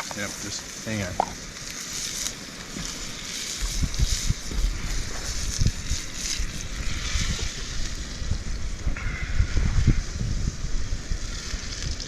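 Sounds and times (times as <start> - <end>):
campfire crackling: 0.0 - 12.0
wind buffeting microphone: 3.6 - 12.0.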